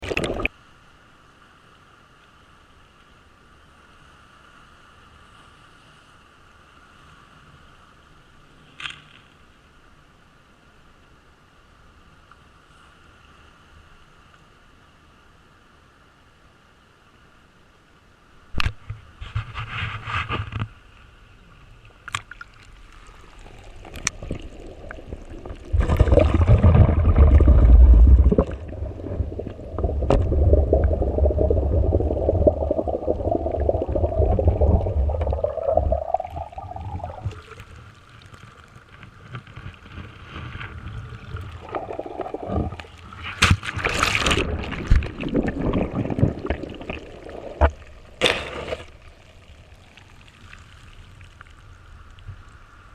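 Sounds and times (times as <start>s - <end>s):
water gurgling and sloshing: 21.6s - 52.8s
heavy low rumble: 25.7s - 37.3s.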